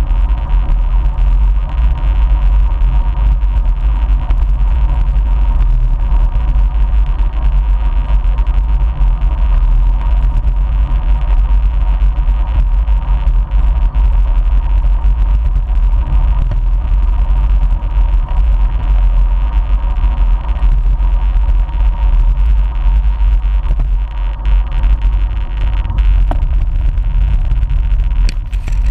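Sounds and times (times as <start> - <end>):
faint steady whine: 0.0 - 28.9
low rumble of bike riding: 0.0 - 28.9
wind buffeting microphone: 23.6 - 28.9.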